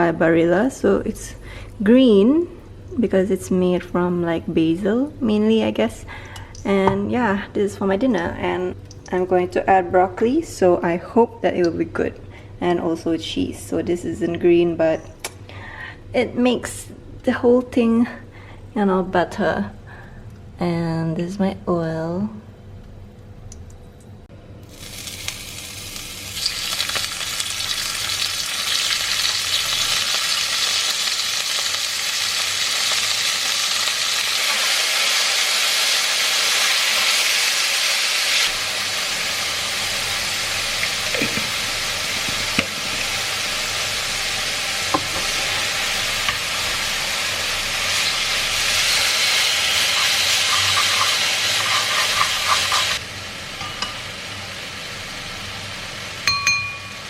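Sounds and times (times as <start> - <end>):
food sizzling in hot oil: 24.6 - 57.0.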